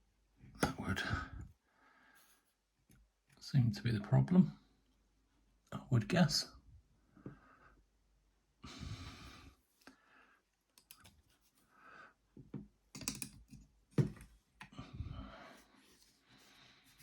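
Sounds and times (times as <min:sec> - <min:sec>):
plastic clicks and taps: 0:12.5 - 0:14.7.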